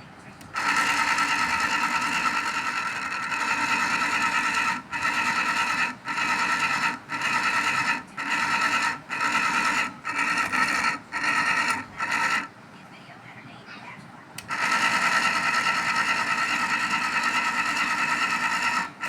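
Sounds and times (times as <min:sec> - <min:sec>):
fan squealing with high whine: 0:00.0 - 0:12.8, 0:13.9 - 0:19.0.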